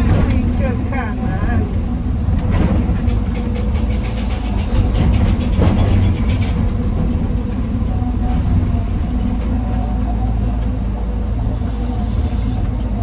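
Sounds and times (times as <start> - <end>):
rapid rattling clatter of stone: 0.0 - 1.7, 2.3 - 7.4
diesel machinery rumbling: 0.0 - 13.0.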